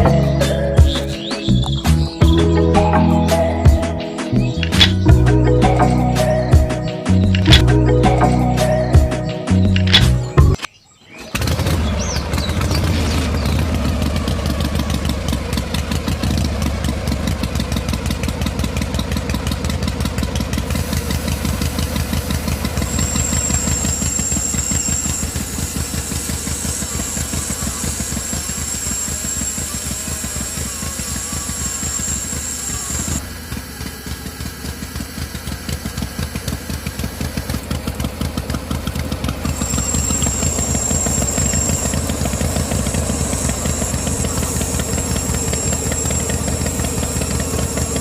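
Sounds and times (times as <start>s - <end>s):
small engine chugging: 0.0s - 48.0s
thin high whine: 20.7s - 33.8s, 39.4s - 48.0s.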